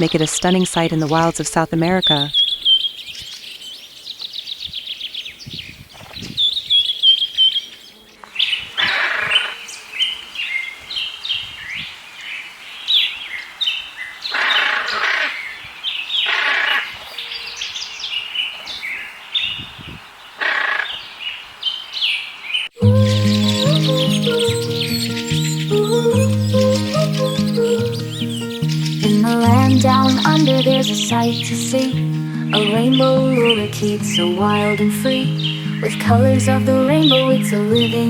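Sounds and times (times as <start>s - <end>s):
high bird chirps: 0.0s - 11.9s, 20.8s - 38.0s
harsh bird calls: 0.0s - 38.0s.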